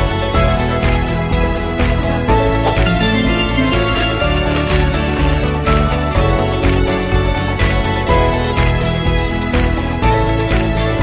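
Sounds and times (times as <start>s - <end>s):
upbeat instrumental music: 2.6s - 6.1s.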